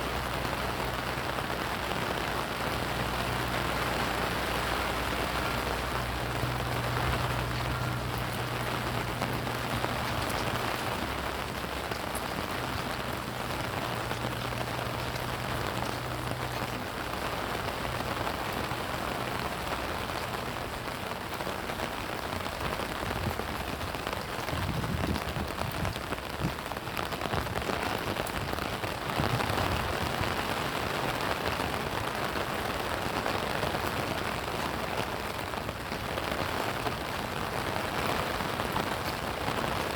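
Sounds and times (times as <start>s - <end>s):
rain pattering on surfaces: 0.0s - 39.9s
low steady hum: 0.2s - 20.8s.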